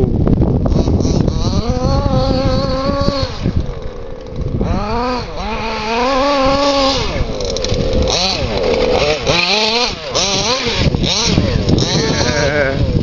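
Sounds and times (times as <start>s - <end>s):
two-stroke engine revving: 0.6s - 13.0s.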